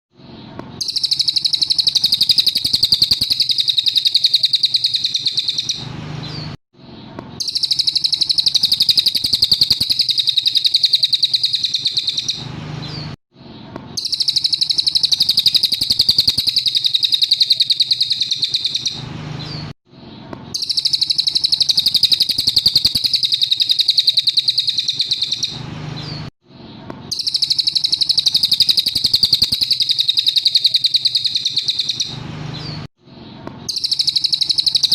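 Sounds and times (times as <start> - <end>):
songbird high trill: 0.8 - 6.5, 7.4 - 13.1, 14.0 - 19.6, 20.6 - 26.3, 27.1 - 32.9, 33.7 - 34.9.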